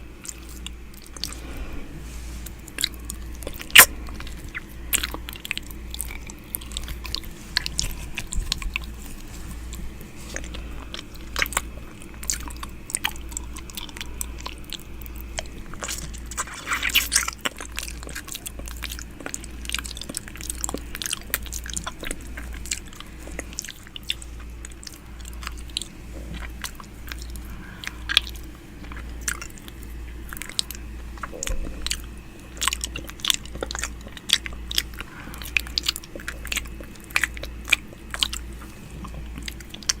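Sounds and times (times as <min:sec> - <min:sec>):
wet mouth sounds: 0:00.0 - 0:40.0
lip smacks: 0:00.2 - 0:01.8, 0:02.4 - 0:40.0
mouth clicks: 0:02.7 - 0:08.8.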